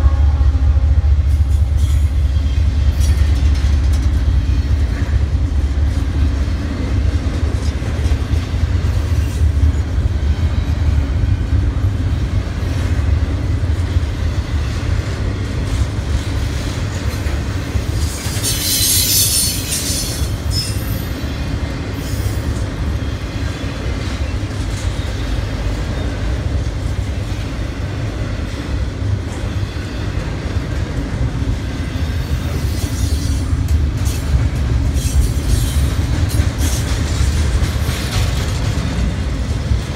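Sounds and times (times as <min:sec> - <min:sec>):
freight train rumbling past: 0:00.0 - 0:39.9
high-pitched wheel squeal: 0:18.4 - 0:21.0.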